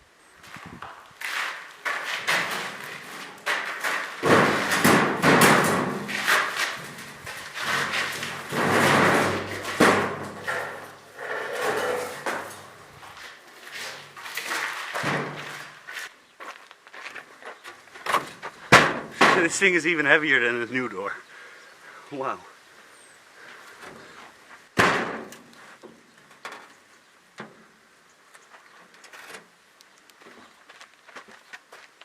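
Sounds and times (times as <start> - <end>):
rattling and grinding: 1.9 - 13.0.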